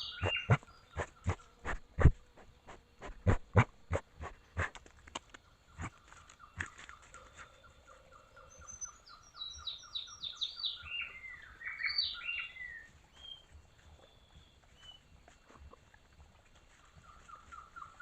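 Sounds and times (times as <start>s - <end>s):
bird short repeated notes: 0.0s - 2.2s.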